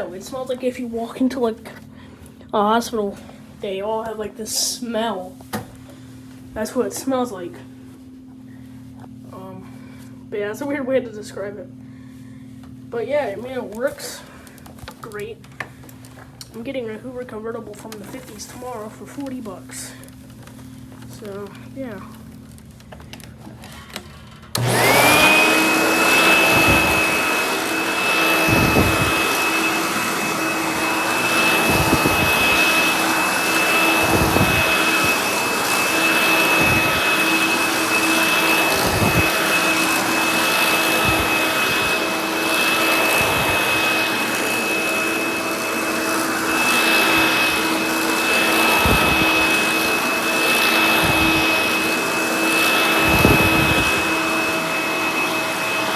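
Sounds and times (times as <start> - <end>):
vacuum cleaner motor whine: 17.7 - 55.9.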